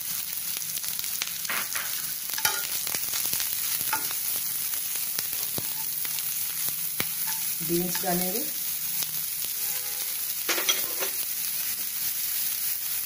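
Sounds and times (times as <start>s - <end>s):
onions sizzling in hot oil: 0.0s - 13.0s
steel ladle stirring in pan: 2.3s - 2.9s, 5.3s - 8.2s.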